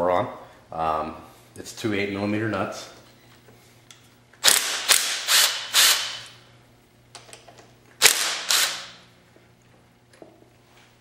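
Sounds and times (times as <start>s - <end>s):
power tool spinning off nuts: 4.4s - 6.3s, 8.0s - 9.0s.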